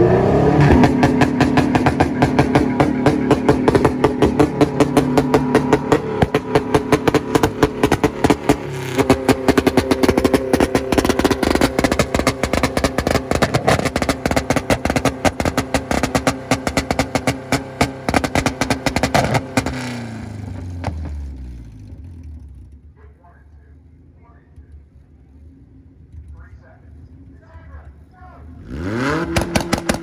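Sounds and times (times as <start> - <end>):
car engine held at revs: 0.0 - 22.9, 24.5 - 30.0
sharp exhaust pops: 0.6 - 21.3, 29.0 - 30.0.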